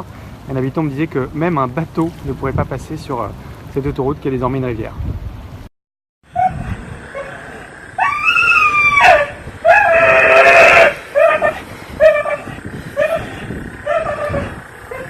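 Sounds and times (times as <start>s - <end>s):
animal crying in distress: 6.3s - 15.0s.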